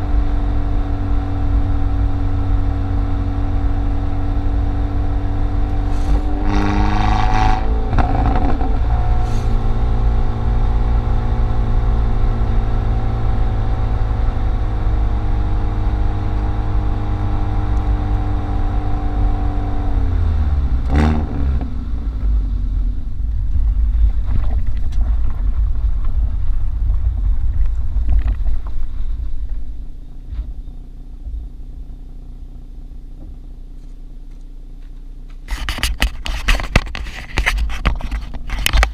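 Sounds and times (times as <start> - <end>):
car engine and exhaust running: 0.0 - 38.9
sharp exhaust crack: 5.2 - 14.6.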